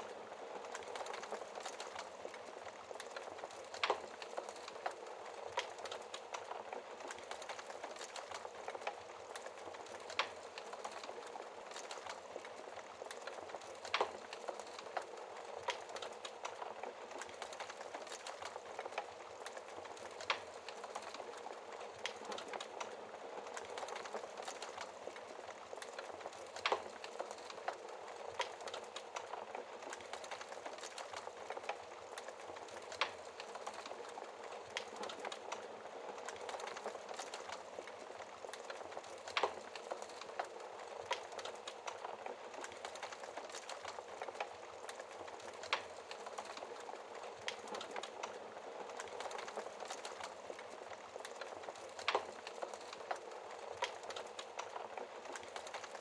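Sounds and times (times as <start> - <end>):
logs hissing and crackling: 0.0 - 56.0.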